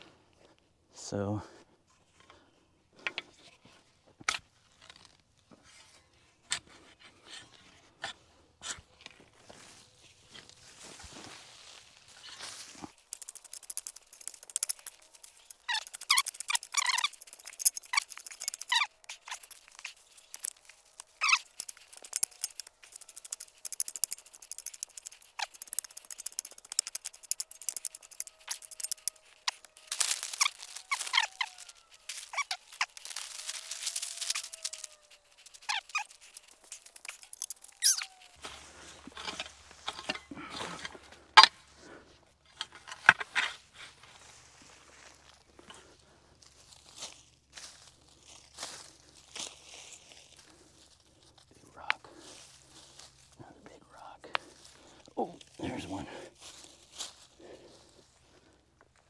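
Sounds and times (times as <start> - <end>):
plastic sheeting crinkling: 28.1 - 36.3.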